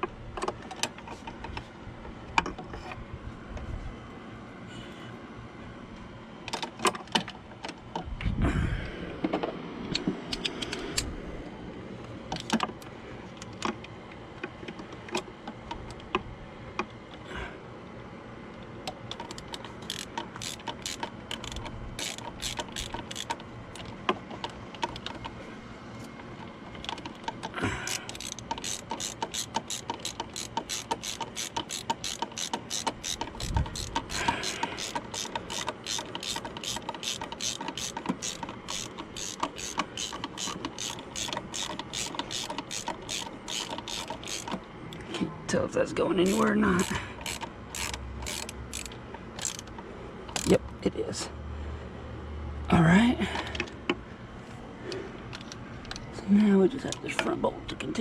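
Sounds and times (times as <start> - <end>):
ratchet wrench clicking: 19.1 - 23.9, 26.8 - 44.6, 46.2 - 50.6.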